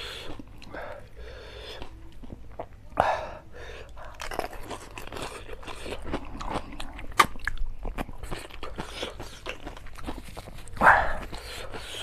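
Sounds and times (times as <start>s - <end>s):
crunchy food being chewed: 0.0s - 3.0s, 3.7s - 12.0s.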